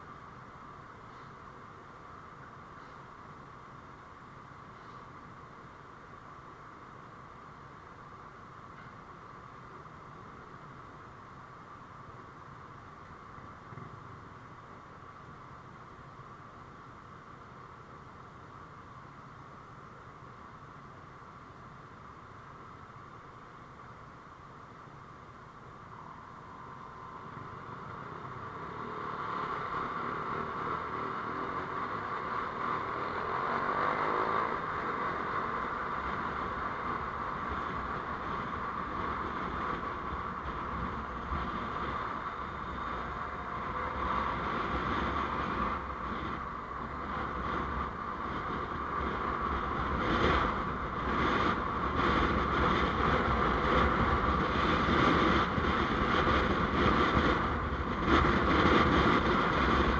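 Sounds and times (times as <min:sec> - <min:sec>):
tyre road rumble: 0:00.0 - 0:59.9
vehicle engine: 0:25.8 - 0:59.9
wind on microphone: 0:34.9 - 0:59.9.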